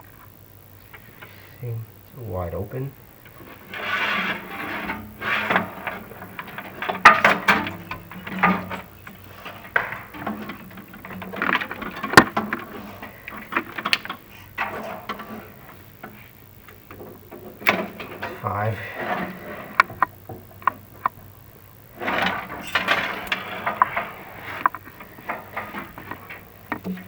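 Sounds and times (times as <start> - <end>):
camera cable scraping clay flue: 3.3 - 7.4.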